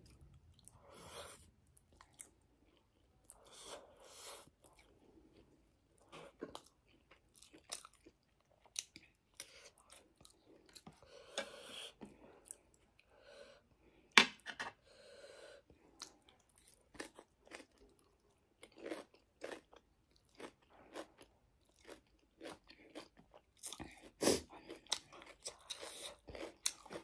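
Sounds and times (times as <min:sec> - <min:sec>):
crunchy chewing: 0:04.4 - 0:11.0, 0:16.0 - 0:27.0.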